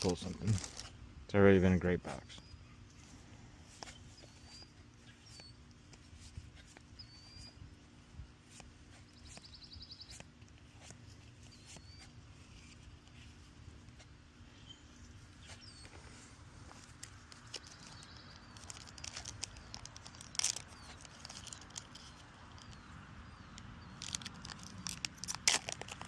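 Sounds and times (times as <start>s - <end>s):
bird chirping: 1.8s - 2.9s, 3.6s - 7.9s, 8.5s - 12.8s, 14.4s - 25.0s
bird trilling: 3.8s - 5.8s, 6.6s - 7.7s, 11.4s - 12.2s.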